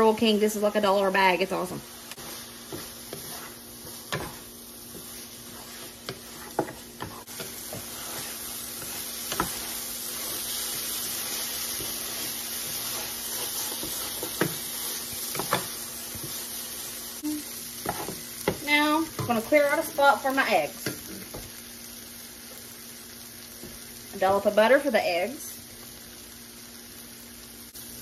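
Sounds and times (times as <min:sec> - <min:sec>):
vegetables sizzling in a skillet: 0:00.0 - 0:28.0.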